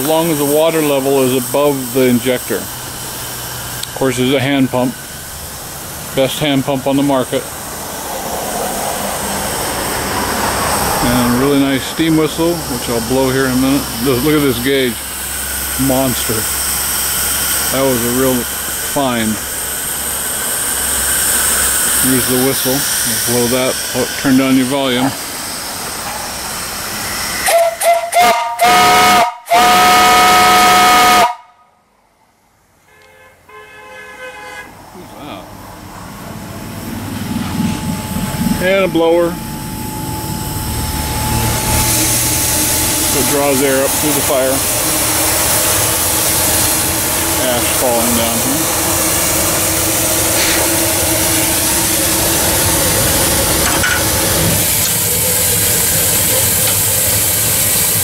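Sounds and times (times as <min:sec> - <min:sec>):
steam hissing: 0:00.0 - 0:31.4, 0:34.9 - 0:58.0
steam whistle toots and blasts: 0:09.0 - 0:25.2, 0:26.3 - 0:31.8, 0:32.9 - 0:34.8, 0:38.5 - 0:58.0
distant whistle toot: 0:27.4 - 0:31.6.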